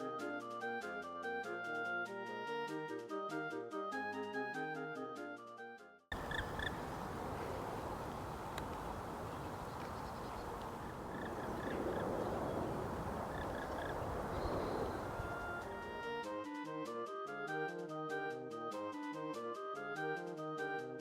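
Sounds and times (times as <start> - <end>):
bird calling in clipped notes: 6.1 - 15.7
outdoor background rush: 6.1 - 16.3.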